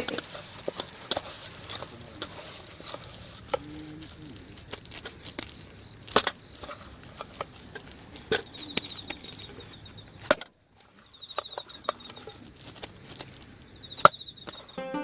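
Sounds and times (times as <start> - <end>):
high-pitched insect drone: 0.0 - 10.2.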